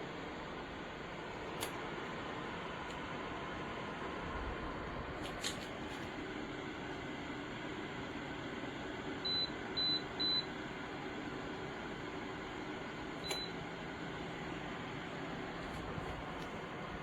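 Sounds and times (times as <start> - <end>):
heater fan running: 0.0 - 17.0
control panel beeping: 13.2 - 13.6.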